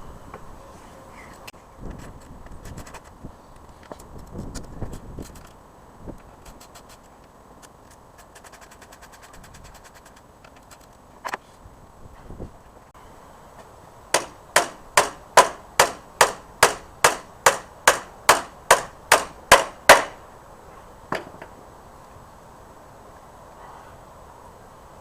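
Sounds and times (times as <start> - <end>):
hammer blows: 14.1 - 20.2.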